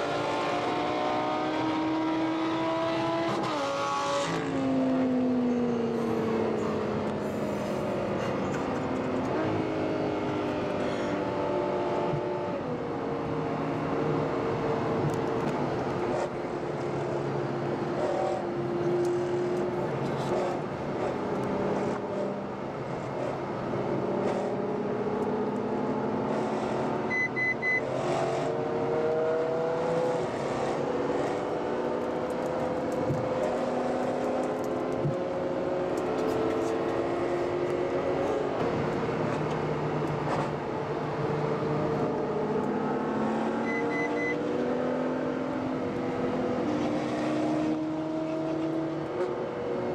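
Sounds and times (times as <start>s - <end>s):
high double beep: 27.1s - 27.9s, 43.6s - 44.5s.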